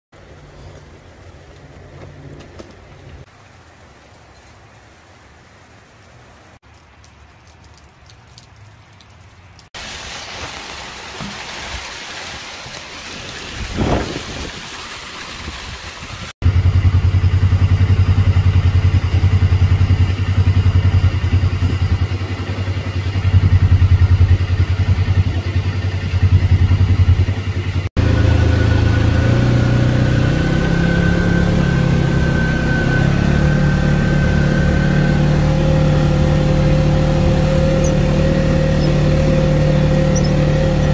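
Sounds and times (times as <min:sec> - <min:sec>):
vehicle engine running: 0:16.4 - 0:40.9.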